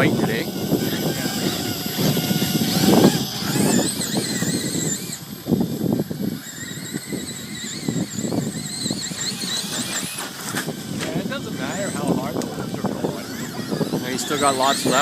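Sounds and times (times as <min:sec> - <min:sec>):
quadcopter motors whining: 0:00.0 - 0:15.0
wind buffeting microphone: 0:00.0 - 0:15.0.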